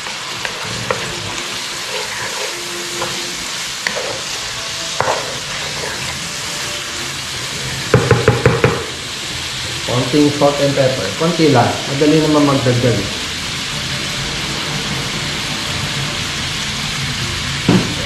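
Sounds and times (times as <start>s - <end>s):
meat sizzling in a frying pan: 0.0s - 18.0s
spatula tapping and scraping pan: 1.9s - 4.3s, 5.0s - 6.0s, 7.9s - 8.9s.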